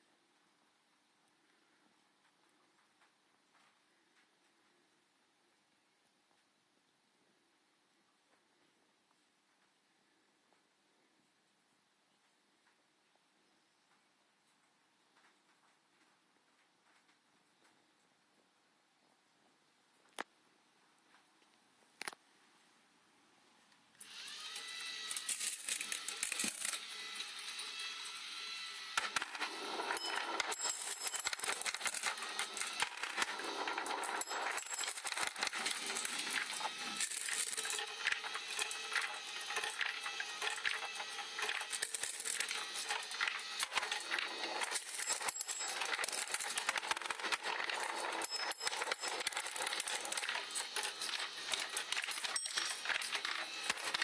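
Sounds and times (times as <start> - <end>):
lift motor whirring: 24.0 - 54.0
marbles clicking and rattling: 24.5 - 27.9, 29.0 - 54.0.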